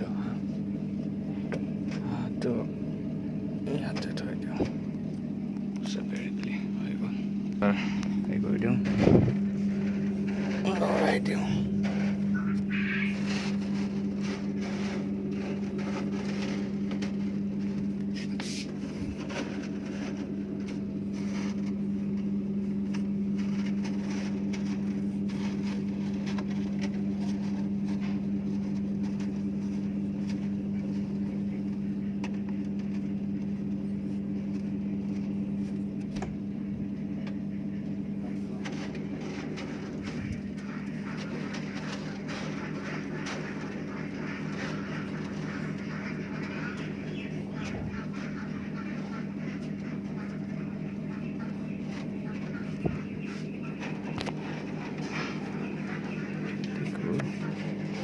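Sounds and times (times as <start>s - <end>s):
low machine hum: 0.0s - 58.0s
poultry calls: 9.4s - 22.5s, 37.0s - 58.0s.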